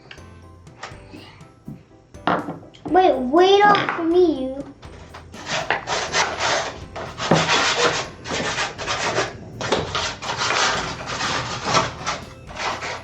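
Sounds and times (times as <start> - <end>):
sandpaper rubbing on wood: 5.4 - 13.0.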